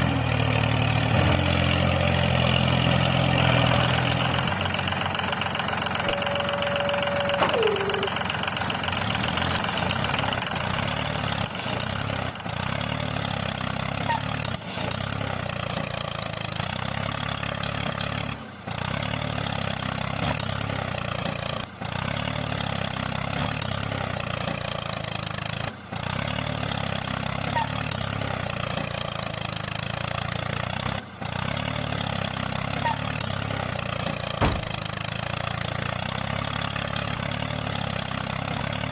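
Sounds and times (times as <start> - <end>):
tone sliding down in pitch: 6.1 - 8.3.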